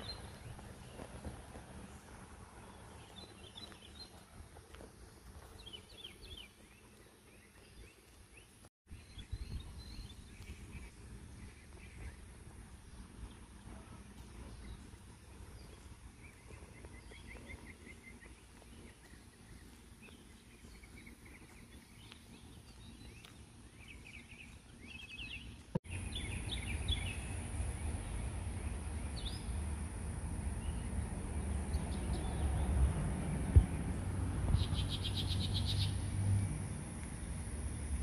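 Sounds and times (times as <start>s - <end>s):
songbirds chirping and trilling: 0.0s - 38.0s
steady low rumble: 9.2s - 38.0s.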